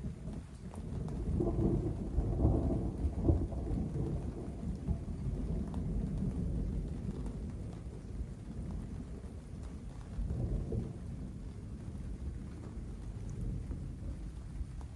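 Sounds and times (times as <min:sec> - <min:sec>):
steady rain: 0:00.0 - 0:14.9
thunder rumbling: 0:01.2 - 0:07.0.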